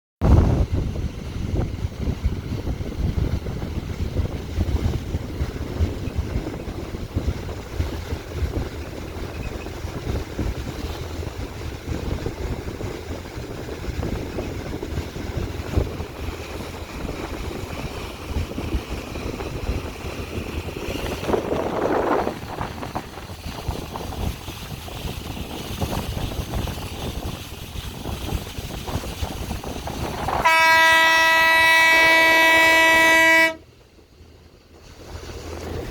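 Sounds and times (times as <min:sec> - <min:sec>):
wind buffeting microphone: 0:00.2 - 0:35.9
boat engines rumbling: 0:00.3 - 0:35.9
loud horn blaring: 0:30.4 - 0:33.6.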